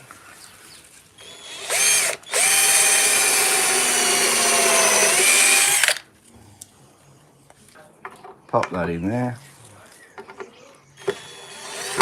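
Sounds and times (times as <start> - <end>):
electric drill whining: 1.2 - 6.0, 11.0 - 12.0.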